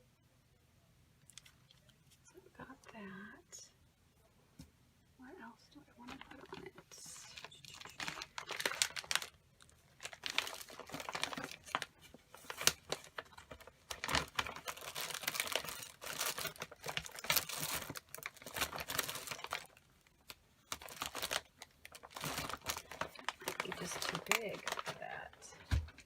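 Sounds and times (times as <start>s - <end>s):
paper rustling: 6.1s - 26.0s.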